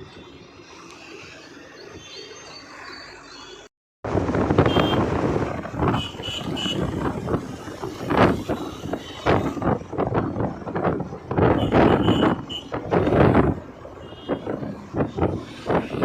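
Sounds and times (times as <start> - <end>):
traffic noise: 0.0 - 16.0
wind buffeting microphone: 4.0 - 16.0.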